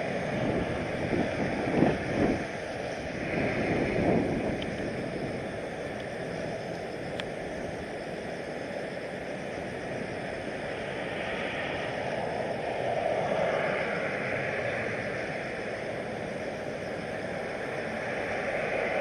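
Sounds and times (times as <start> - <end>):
jet airliner rushing noise: 0.0 - 5.4
wind buffeting microphone: 0.0 - 7.7.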